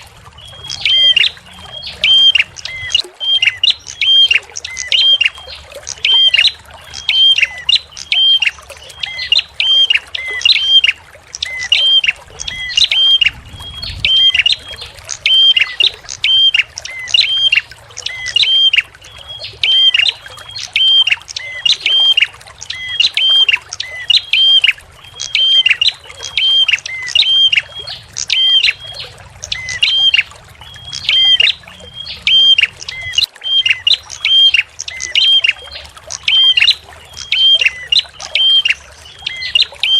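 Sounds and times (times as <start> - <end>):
trickling water: 0.0 - 39.9.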